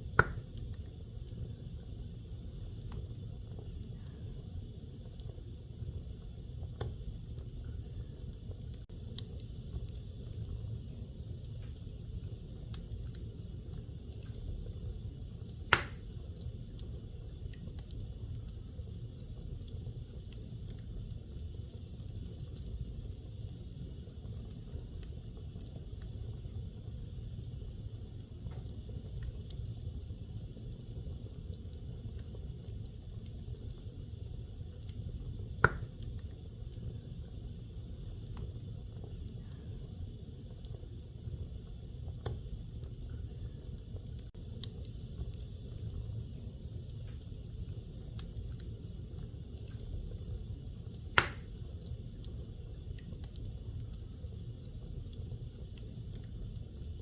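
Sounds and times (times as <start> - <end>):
wood fire crackling: 0.0 - 57.0
sharp loud pop of fire: 15.7 - 16.1, 35.6 - 35.9, 51.2 - 51.5.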